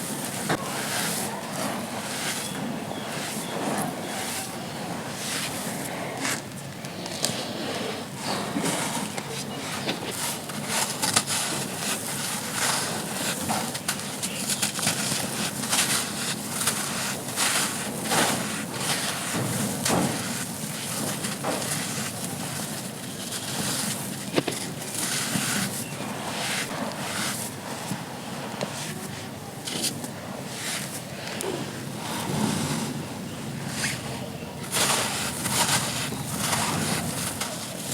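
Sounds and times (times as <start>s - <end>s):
charcoal crunching and crackling: 8.2s - 32.4s, 33.7s - 37.9s.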